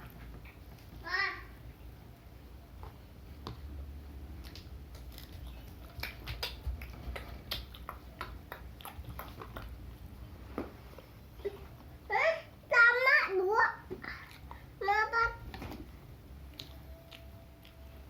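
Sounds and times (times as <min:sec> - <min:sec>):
person chewing crunchy food: 0:04.4 - 0:09.8, 0:16.4 - 0:18.0.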